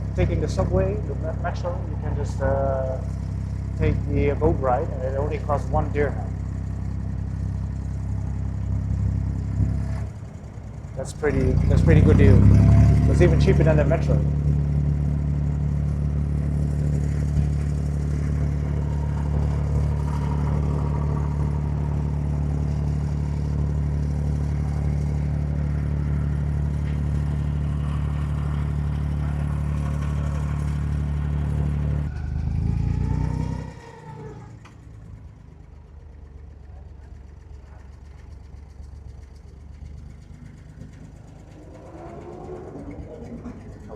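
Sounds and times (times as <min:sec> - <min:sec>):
boat diesel engine drone: 0:00.0 - 0:43.9.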